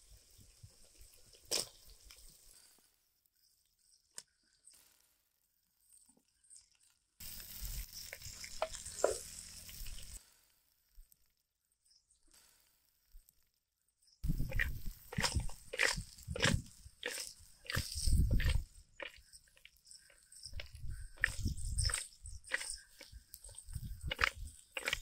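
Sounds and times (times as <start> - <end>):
food sizzling in a pan: 7.2 - 10.4.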